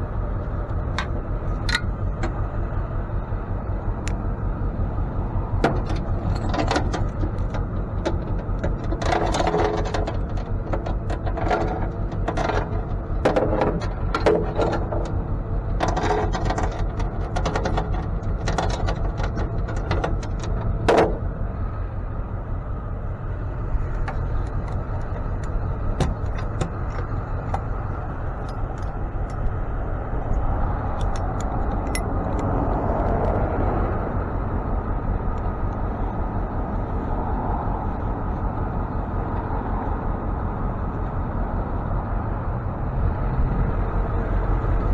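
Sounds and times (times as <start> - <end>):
truck engine rumbling: 0.0 - 44.9
clattering clicks and knocks: 0.4 - 2.6, 5.6 - 21.4, 23.6 - 33.4.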